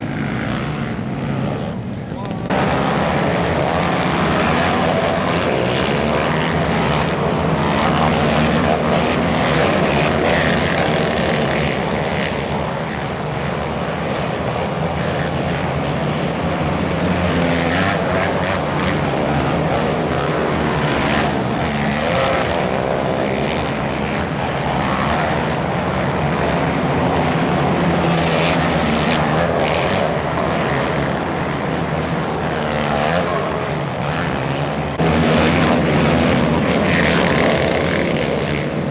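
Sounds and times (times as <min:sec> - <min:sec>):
race vehicle engines revving: 0:00.0 - 0:38.9.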